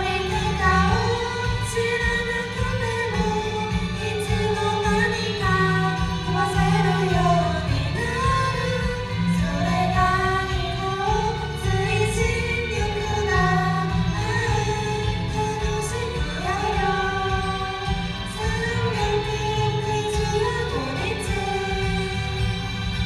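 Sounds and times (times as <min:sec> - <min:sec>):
instrumental backing: 0:00.0 - 0:23.0
women singing pop song: 0:00.0 - 0:23.0.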